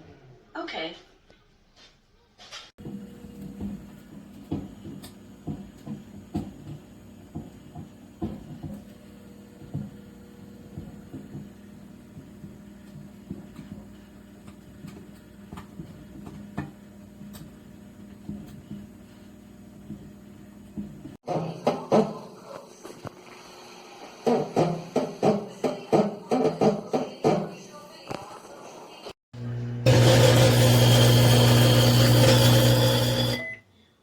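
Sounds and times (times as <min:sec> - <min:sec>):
microwave humming: 0:02.8 - 0:21.2, 0:29.4 - 0:33.7.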